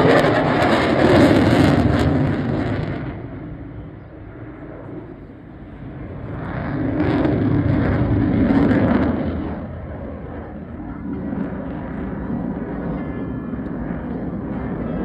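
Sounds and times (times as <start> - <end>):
jet engine noise: 0.0 - 15.0.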